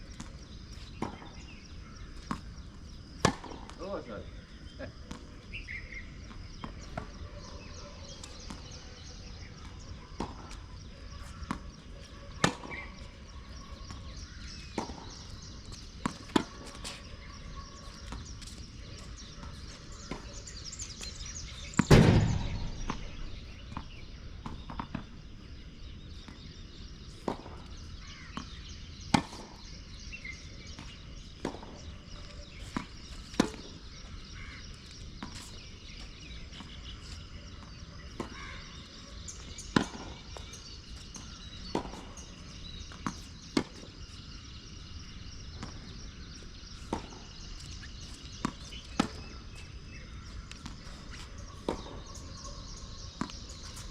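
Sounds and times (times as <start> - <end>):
tennis balls struck by rackets: 0.1 - 3.9, 8.2 - 13.1, 13.8 - 25.5, 26.2 - 29.8, 30.7 - 33.8, 39.6 - 44.8, 45.4 - 52.1, 53.0 - 53.9
loud deep thump: 21.8 - 24.2.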